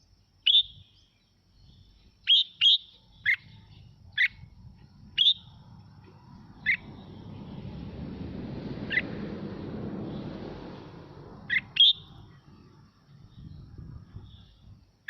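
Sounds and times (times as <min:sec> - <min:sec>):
low rushing noise: 0:03.8 - 0:14.9.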